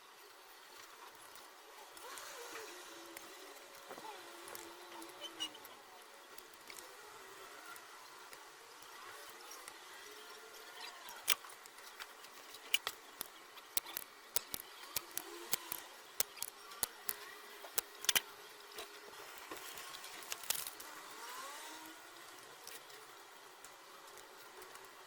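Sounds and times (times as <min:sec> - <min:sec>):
sharp irregular clicks and taps: 0:11.0 - 0:18.2.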